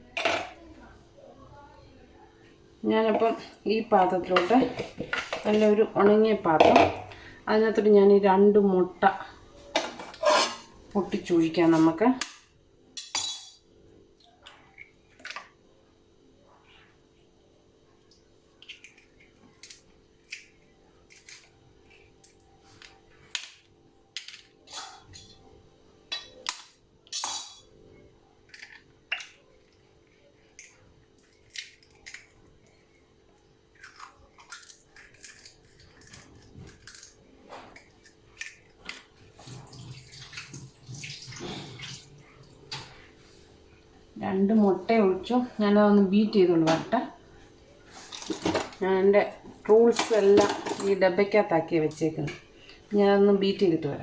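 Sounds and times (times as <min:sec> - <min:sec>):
eggs cracking on a bowl: 0:28.4 - 0:33.1, 0:33.7 - 0:39.2.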